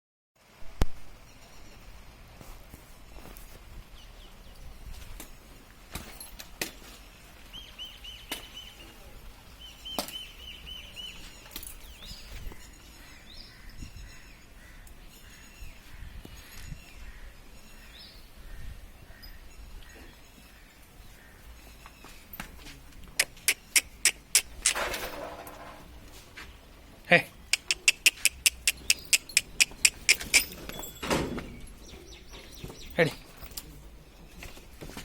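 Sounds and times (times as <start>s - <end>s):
bird chirping: 7.1s - 15.8s, 27.4s - 33.5s
sharp clicks or knocks: 23.2s - 25.8s.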